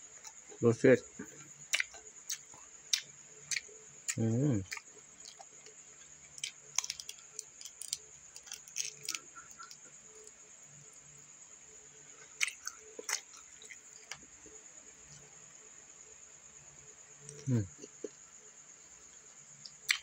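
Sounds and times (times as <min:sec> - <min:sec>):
chewing crunchy food: 0:01.2 - 0:10.4, 0:12.2 - 0:14.3, 0:19.6 - 0:20.0.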